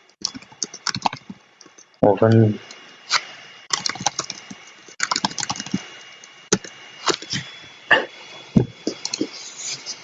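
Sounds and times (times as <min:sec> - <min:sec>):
keyboard and mouse clicks: 0:00.2 - 0:01.9, 0:03.7 - 0:05.8.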